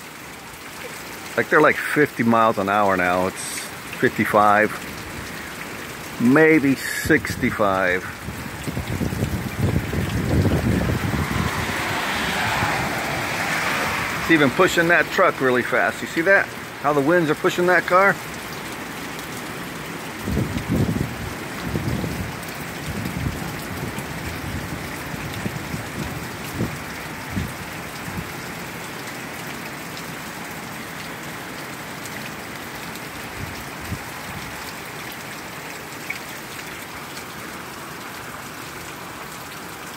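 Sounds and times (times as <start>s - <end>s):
heavy rain falling: 0.0s - 39.9s
wind buffeting microphone: 8.1s - 14.3s, 20.2s - 28.3s.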